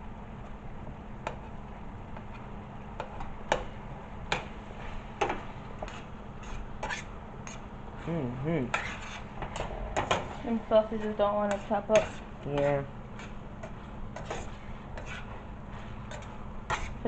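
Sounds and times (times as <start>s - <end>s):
utensil knocking and scraping in pan: 5.2s - 7.6s, 8.7s - 17.0s.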